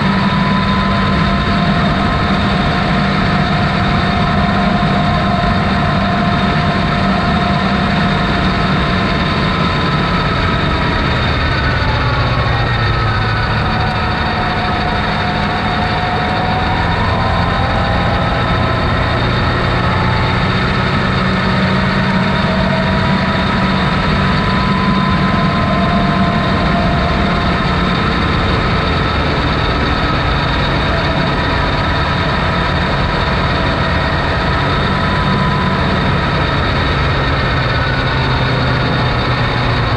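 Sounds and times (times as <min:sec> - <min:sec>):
off-road vehicle engine droning: 0:00.0 - 0:39.9.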